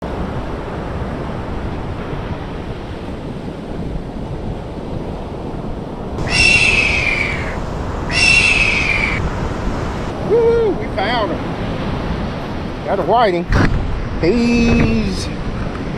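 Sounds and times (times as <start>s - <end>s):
surf: 0.0s - 15.9s
wind: 0.0s - 15.9s
high falling whines: 6.2s - 10.1s.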